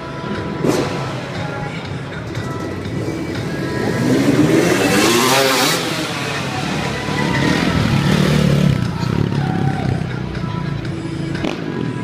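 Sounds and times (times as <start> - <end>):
dirt bike engine revving: 0.6 - 9.4.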